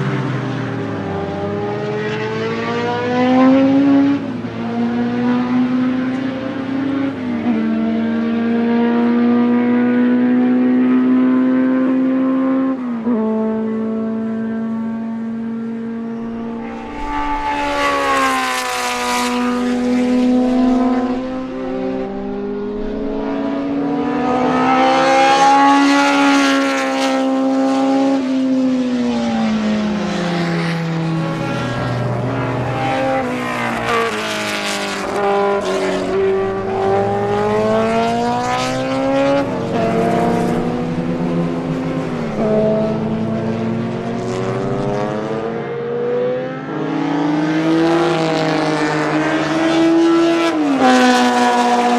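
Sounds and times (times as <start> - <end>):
racing engine revving: 14.6 - 51.9.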